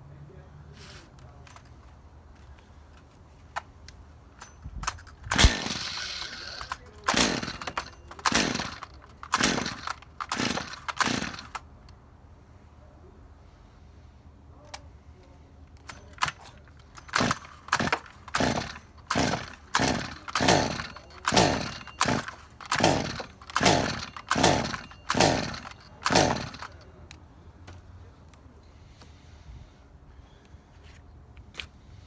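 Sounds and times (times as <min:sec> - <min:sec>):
chainsaw rope pulls whirring: 0:05.2 - 0:11.7, 0:15.9 - 0:26.9
chainsaw engine popping: 0:05.3 - 0:11.6, 0:15.8 - 0:26.8.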